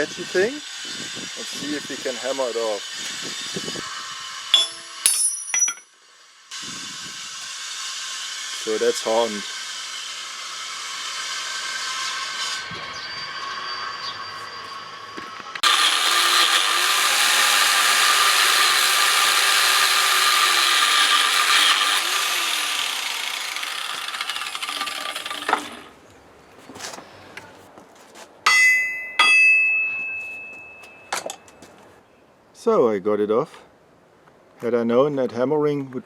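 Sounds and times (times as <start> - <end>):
power tool on metal: 0.0 - 5.2, 6.5 - 25.9
hammer blows on metal: 4.5 - 5.8, 28.5 - 31.4.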